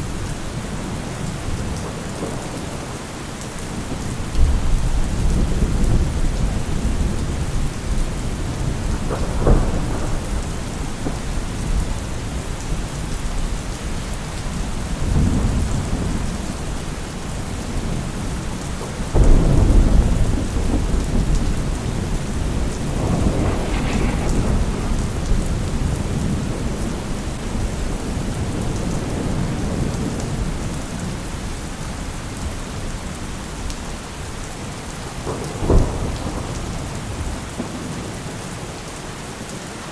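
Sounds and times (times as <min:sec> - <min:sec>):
heavy rain: 0:00.0 - 0:39.9
thunder rumbling: 0:03.7 - 0:13.4, 0:14.5 - 0:31.1.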